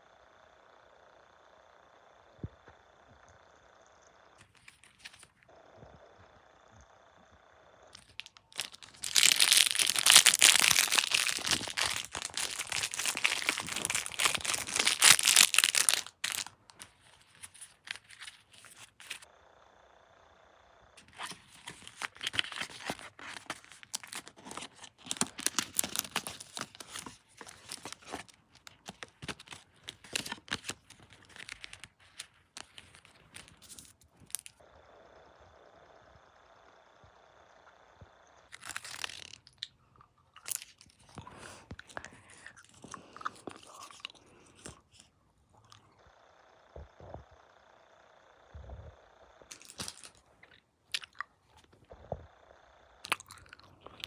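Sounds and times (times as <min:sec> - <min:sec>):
crackles and clicks: 0:01.3 - 0:19.3, 0:21.0 - 0:34.8, 0:35.7 - 0:54.0
crinkling and tearing: 0:08.0 - 0:19.3, 0:21.0 - 0:34.6, 0:38.5 - 0:39.8, 0:40.4 - 0:44.8, 0:49.5 - 0:51.8.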